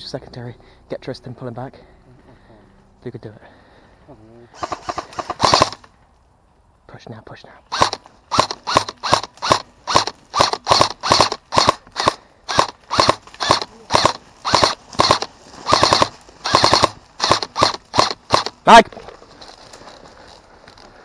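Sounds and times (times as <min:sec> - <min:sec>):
airsoft rifle shots: 0:04.6 - 0:05.9, 0:07.7 - 0:18.8.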